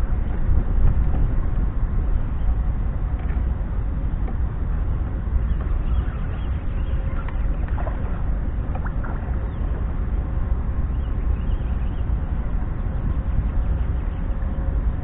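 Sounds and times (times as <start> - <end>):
faint steady whine: 0.0 - 15.0
motor boat rumble: 0.0 - 15.0
faint water splashes: 5.1 - 10.4.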